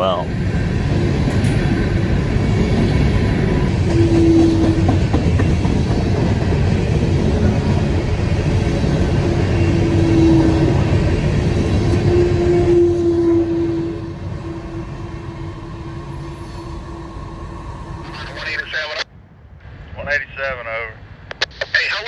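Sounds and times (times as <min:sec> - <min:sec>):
freight train rumbling: 0:00.0 - 0:19.1
train wheels clattering on rails: 0:00.4 - 0:12.8.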